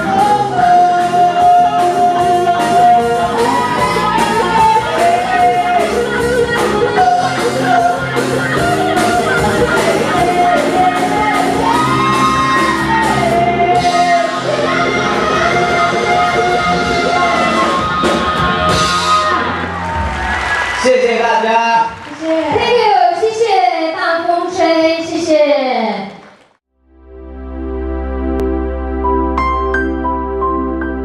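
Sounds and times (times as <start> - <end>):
lead singer singing: 0.0 - 19.5
live pop band playing: 0.0 - 20.8.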